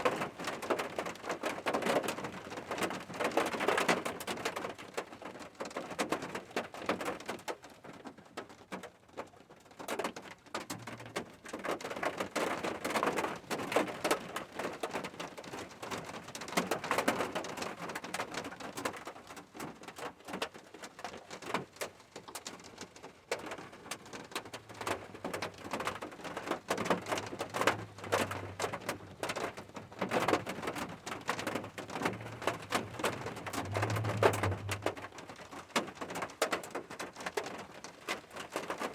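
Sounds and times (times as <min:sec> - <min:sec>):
rain falling: 0:00.0 - 0:38.9
faint low hum: 0:31.6 - 0:35.2.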